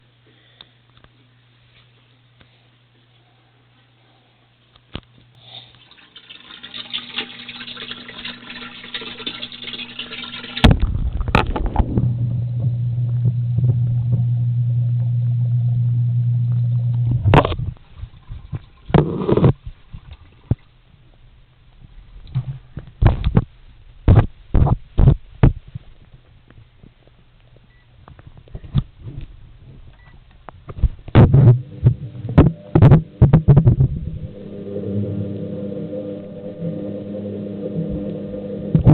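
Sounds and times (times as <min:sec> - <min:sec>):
microwave humming: 0:04.8 - 0:19.4, 0:31.1 - 0:38.9.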